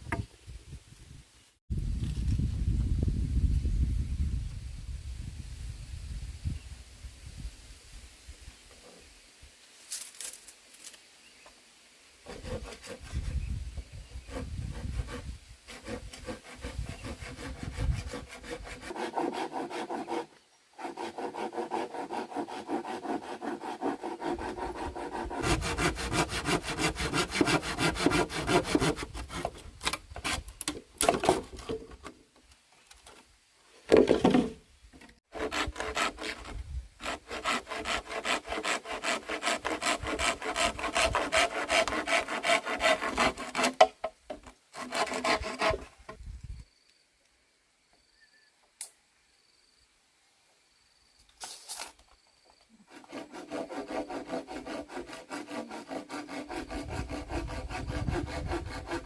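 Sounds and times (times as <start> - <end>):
handsaw rasping through wood: 12.3 - 13.4, 14.2 - 29.6, 35.3 - 43.9, 44.8 - 45.9, 52.9 - 59.0.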